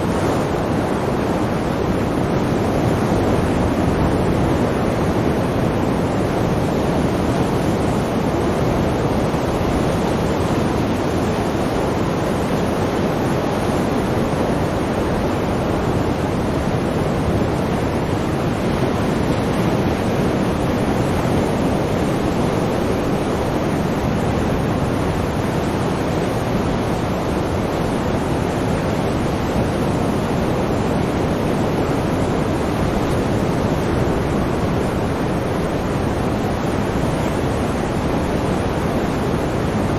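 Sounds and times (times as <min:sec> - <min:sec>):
waves rushing: 0:00.0 - 0:39.9.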